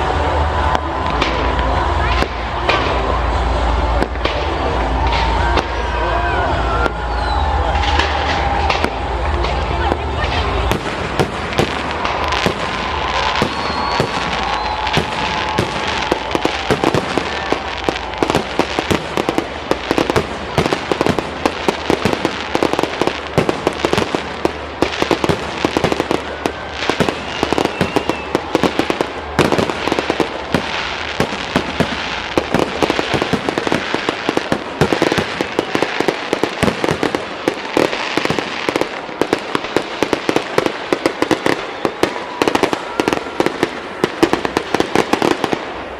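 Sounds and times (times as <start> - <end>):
fireworks bangs and crackling: 0.0 - 45.9
faint firework whistles: 6.7 - 9.0, 11.9 - 18.6, 26.1 - 32.7, 34.8 - 37.1.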